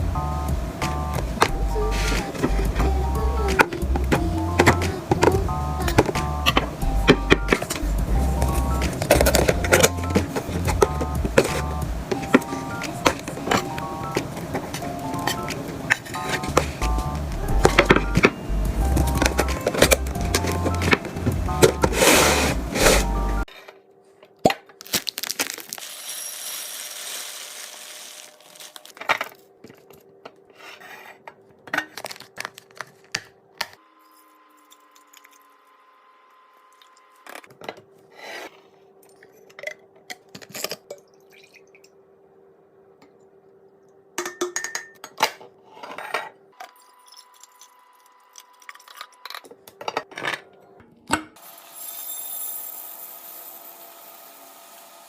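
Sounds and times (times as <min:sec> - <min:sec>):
containers clinking and clattering: 0:01.2 - 0:02.9, 0:03.5 - 0:23.4, 0:25.3 - 0:30.0
packaging crinkling: 0:24.7 - 0:29.4, 0:31.9 - 0:33.3.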